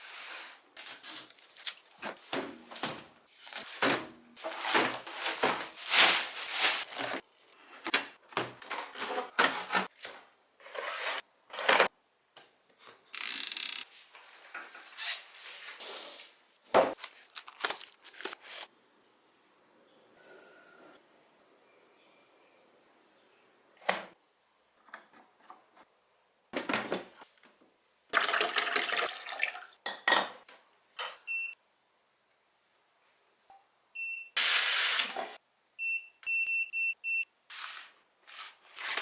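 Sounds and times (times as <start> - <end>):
cardboard and plastic rustling: 0.8 - 10.2, 16.8 - 18.7.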